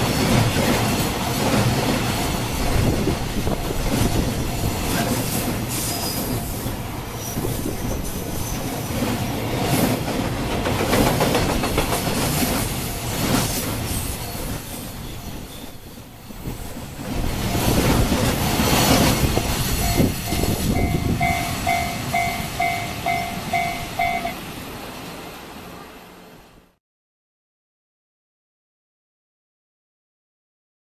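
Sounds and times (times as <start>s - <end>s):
freight train wheels clacking: 0.0s - 24.5s.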